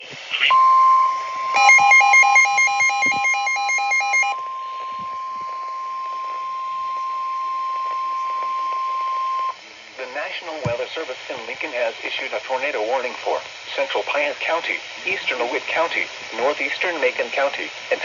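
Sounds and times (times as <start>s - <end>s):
steady alarm tone: 0.5s - 9.6s.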